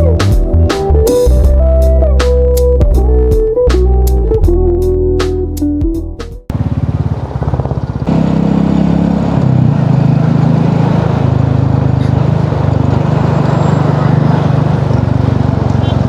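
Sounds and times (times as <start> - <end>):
motorcycle engine running: 6.5 - 16.0.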